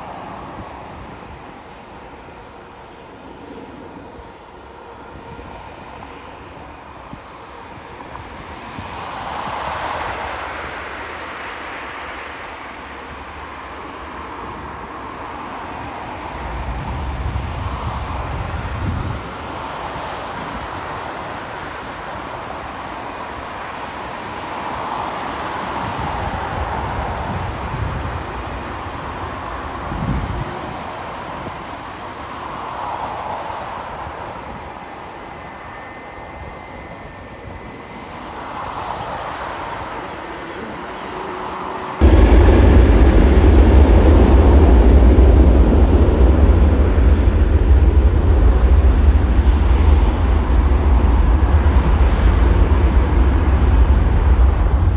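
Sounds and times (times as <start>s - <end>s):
aircraft engine rush: 0.0s - 54.9s
faint whine: 0.0s - 54.9s
deep engine rumble: 41.6s - 54.9s
wind thump on microphone: 42.0s - 54.9s.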